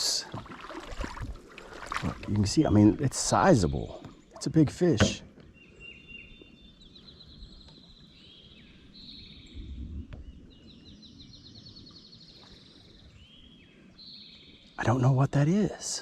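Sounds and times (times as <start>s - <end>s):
low rumble: 9.4s - 10.5s.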